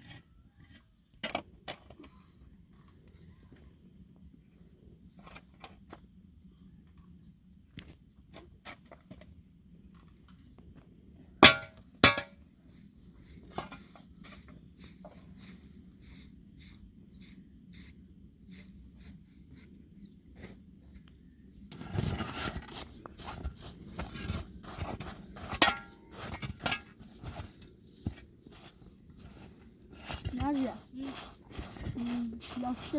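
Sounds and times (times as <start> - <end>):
rustling knocking and clinking: 22.7 - 27.6.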